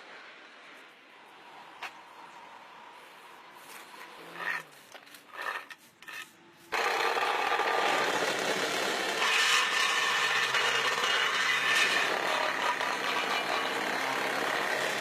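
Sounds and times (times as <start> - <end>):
short scrapes: 3.6 - 6.7
road-repair machinery grinding: 3.7 - 15.0.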